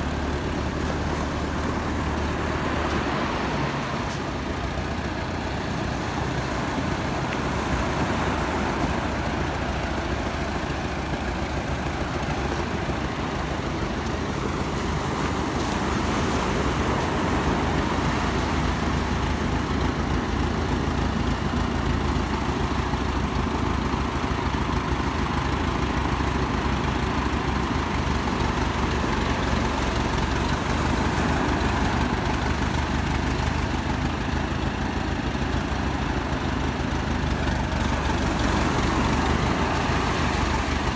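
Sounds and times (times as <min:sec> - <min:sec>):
tractor engine running: 0:00.0 - 0:40.9
waves washing in: 0:00.0 - 0:40.9.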